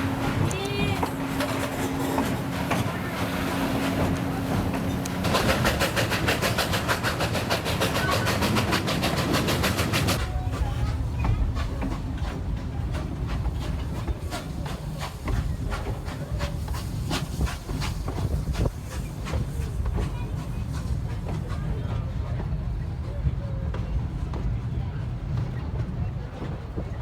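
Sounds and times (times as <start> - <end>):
steam train running: 0.0 - 27.0.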